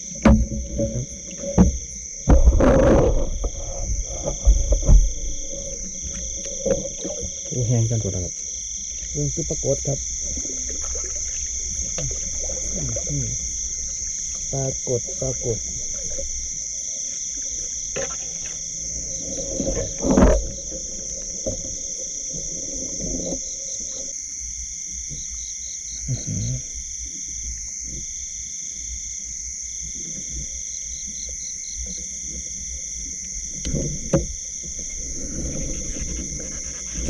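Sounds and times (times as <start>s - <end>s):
high-pitched insect chorus: 0.0s - 37.0s
pulsing insect trill: 0.0s - 37.0s
knocking: 0.2s - 7.2s
close rustling: 33.8s - 37.0s.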